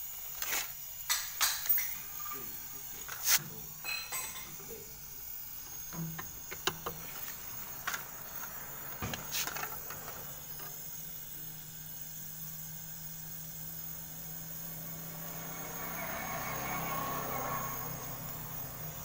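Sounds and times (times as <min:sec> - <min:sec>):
tools and metal parts clicking: 0:01.1 - 0:03.2
steady low hum: 0:01.8 - 0:16.6.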